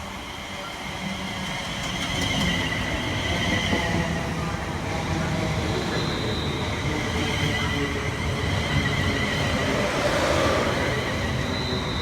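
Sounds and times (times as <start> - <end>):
train rumbling: 6.7 - 12.0.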